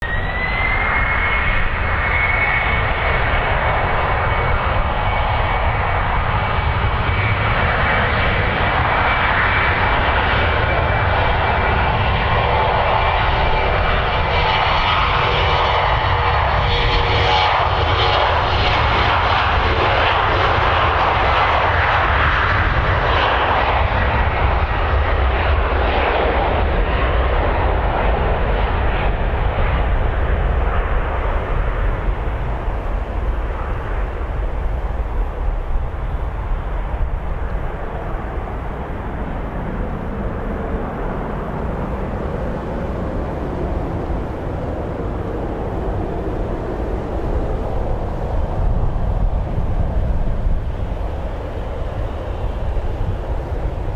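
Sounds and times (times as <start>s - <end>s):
jet engines roaring: 0.0s - 53.9s.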